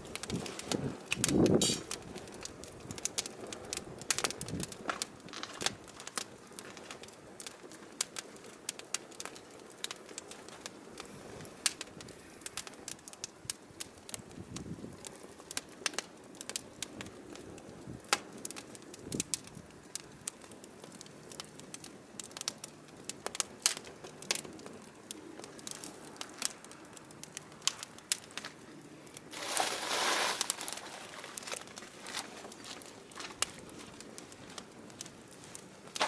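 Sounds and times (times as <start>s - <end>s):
firewood crackling and popping: 0.0s - 36.0s
hissing rush: 29.3s - 31.2s.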